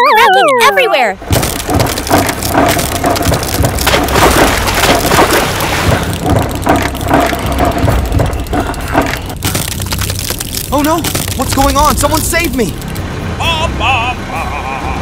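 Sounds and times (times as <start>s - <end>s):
wooden bridge creaking and cracking: 1.2s - 13.1s.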